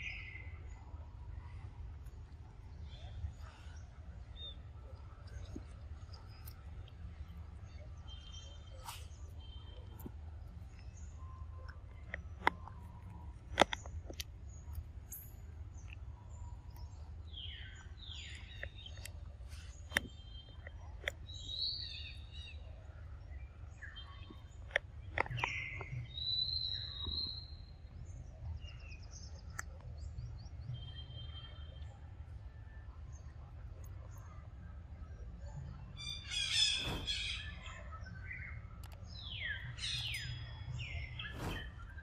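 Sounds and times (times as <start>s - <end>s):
sharp clicks: 11.6s - 16.0s
birds chirping and calling: 36.0s - 42.0s.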